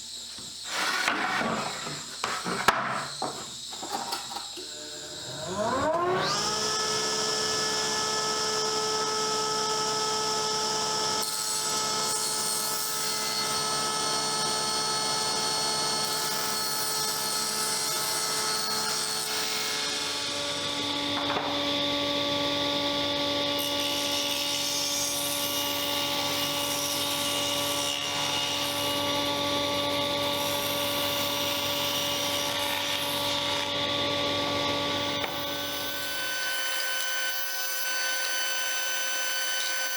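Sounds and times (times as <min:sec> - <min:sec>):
power tool motor whining: 0:00.2 - 0:16.2.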